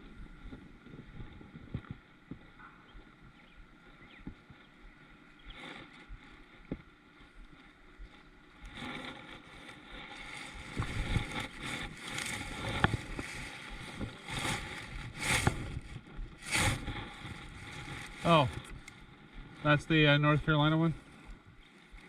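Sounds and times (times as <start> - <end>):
water sloshing around a kayak: 5.2 - 19.0.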